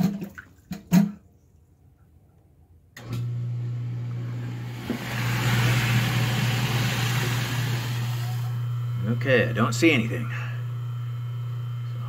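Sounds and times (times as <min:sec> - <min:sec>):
garbage disposal motor humming: 0:03.0 - 0:12.0
water rushing down drain: 0:04.4 - 0:08.6.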